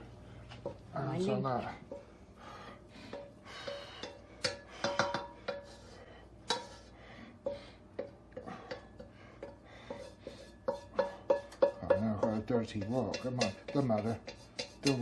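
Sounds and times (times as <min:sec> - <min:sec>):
utensil scraping a wok: 0:03.1 - 0:15.0.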